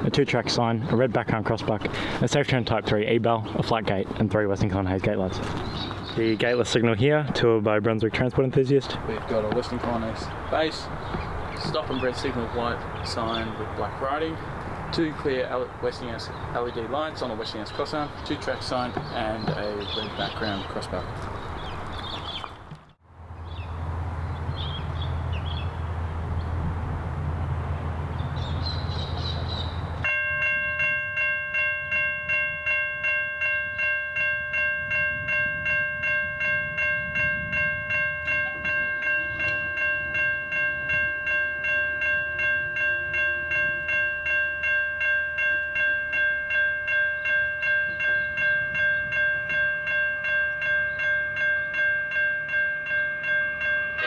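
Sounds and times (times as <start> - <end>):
low wind rumble: 0.0 - 30.1, 34.7 - 44.0
level crossing bell ringing: 30.0 - 54.0.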